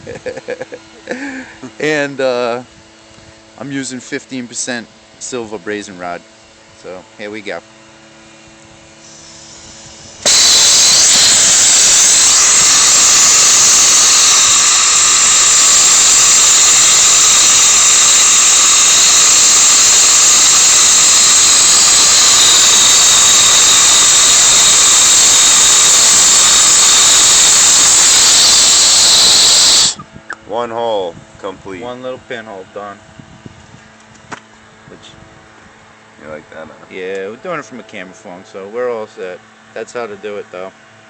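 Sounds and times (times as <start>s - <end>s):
torch flame hissing: 9.0s - 30.0s.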